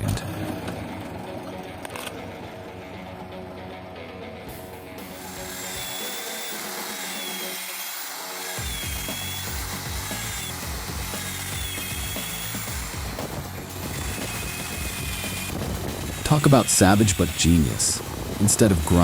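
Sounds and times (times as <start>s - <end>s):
faint background music: 0.0s - 7.6s, 8.6s - 19.0s
machine cutting wood: 4.5s - 19.0s.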